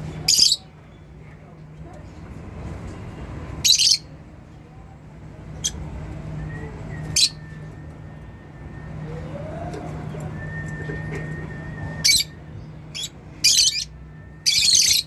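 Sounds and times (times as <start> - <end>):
lovebirds chirping: 0.2 - 0.6, 12.9 - 15.0.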